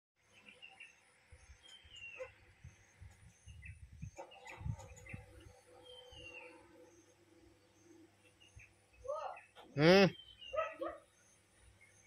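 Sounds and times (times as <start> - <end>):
small birds chirping: 0.2 - 12.0
wind rumble on microphone: 1.4 - 5.6.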